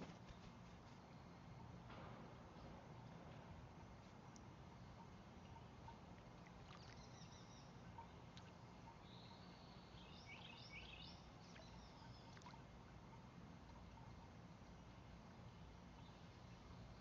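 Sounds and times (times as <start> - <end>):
low background hum: 0.0 - 17.0
faint bird chirping: 4.0 - 17.0.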